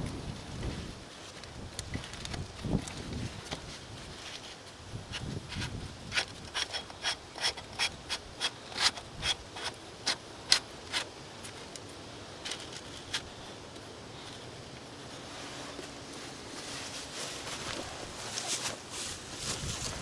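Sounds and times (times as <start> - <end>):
short sharp scraping clicks: 5.1 - 11.1.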